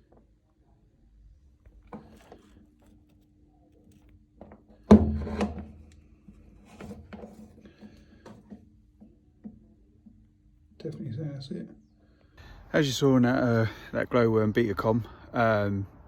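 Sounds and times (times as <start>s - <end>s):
tools knocking and scraping: 4.4s - 11.1s
loud clunk: 4.9s - 5.9s.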